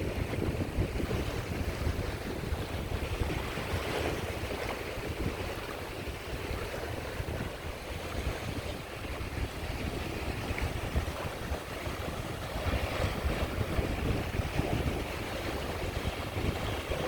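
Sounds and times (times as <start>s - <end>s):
sea waves washing onto shore: 0.0s - 17.0s
wind rumbling on microphone: 0.0s - 17.0s.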